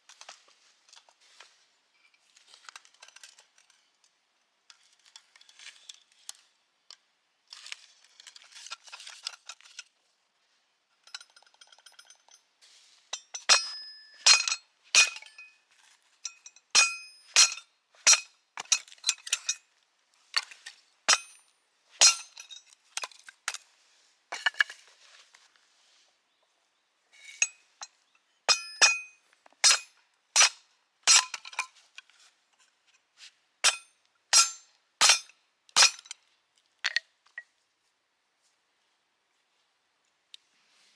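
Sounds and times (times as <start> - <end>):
handling and rustling: 24.4 - 26.1.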